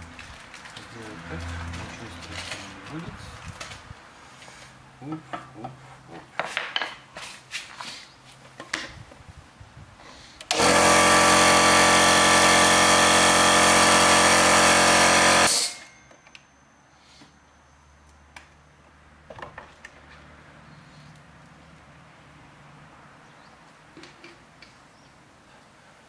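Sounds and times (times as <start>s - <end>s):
compressor motor and pump running: 10.5s - 15.9s.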